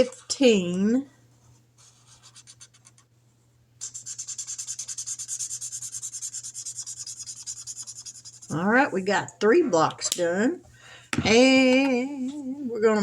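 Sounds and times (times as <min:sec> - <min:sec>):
marker scribbling on paper: 0:01.8 - 0:03.0, 0:03.8 - 0:08.6.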